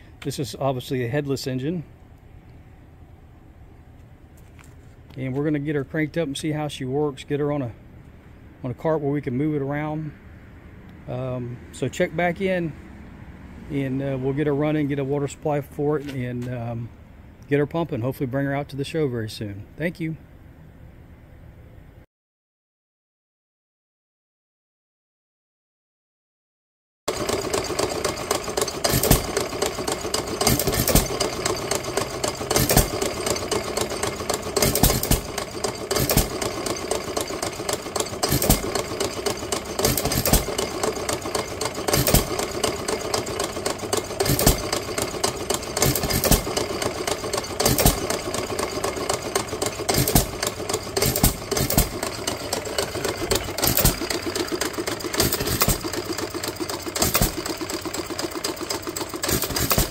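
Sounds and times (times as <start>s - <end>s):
engine mechanical clatter: 27.1s - 59.9s
engine firing bangs: 27.2s - 56.2s.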